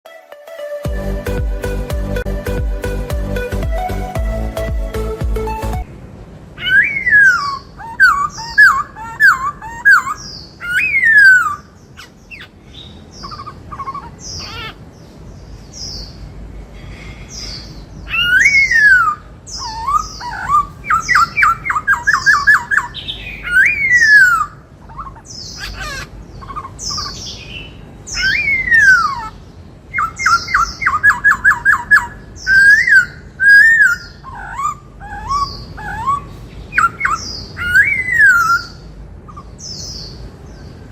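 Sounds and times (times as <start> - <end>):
mimicked cuckoo call: 0.1 - 5.9
bird singing whistled phrases: 6.6 - 11.6, 18.1 - 24.6, 30.0 - 38.8.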